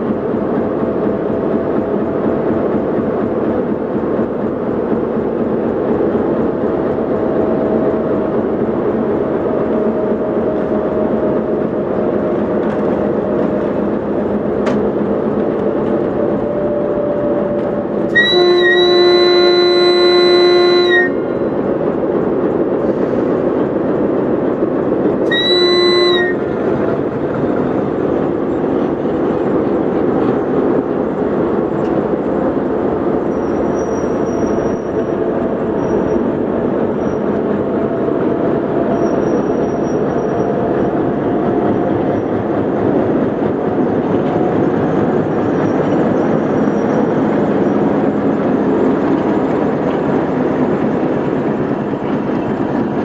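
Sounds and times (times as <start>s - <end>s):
train running past: 0.0s - 53.0s
locomotive horn blast: 16.2s - 21.5s, 25.2s - 26.7s.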